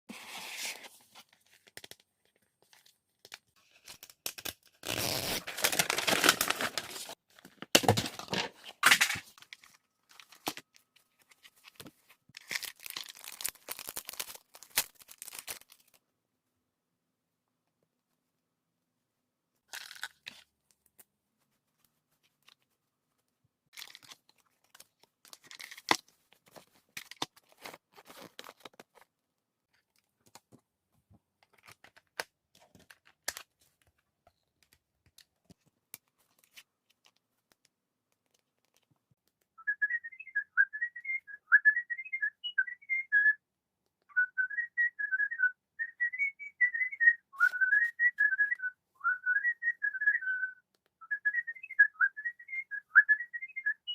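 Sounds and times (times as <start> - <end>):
toy packaging crinkling and tearing: 3.7 - 10.9, 12.3 - 16.0, 19.7 - 20.5, 23.7 - 26.1.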